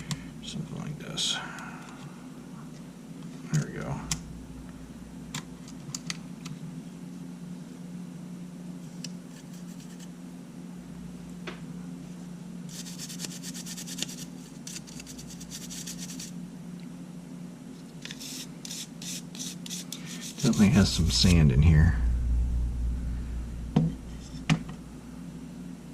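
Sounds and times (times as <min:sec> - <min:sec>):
steady low hum: 0:00.0 - 0:25.9
rapid scratching: 0:18.2 - 0:22.5.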